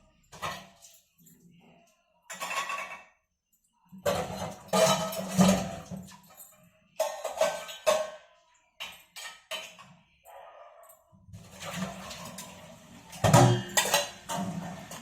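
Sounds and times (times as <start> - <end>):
metal dishes clattering: 2.3 - 3.2, 4.0 - 6.3, 7.0 - 10.0, 11.4 - 15.0.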